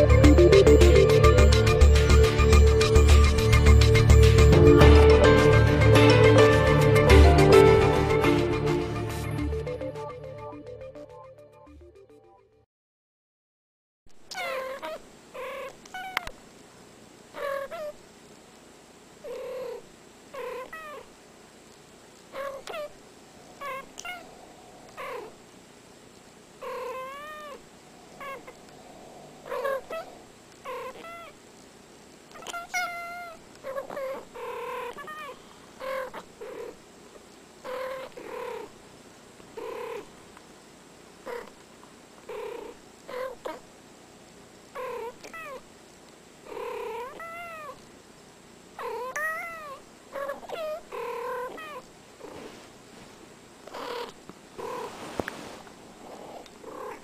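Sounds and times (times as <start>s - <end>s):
cat trills: 22.3s - 25.4s, 26.6s - 31.4s, 32.3s - 36.7s, 48.8s - 51.8s
cats meowing: 22.4s - 25.4s, 26.6s - 31.3s, 46.6s - 47.8s, 48.8s - 51.8s.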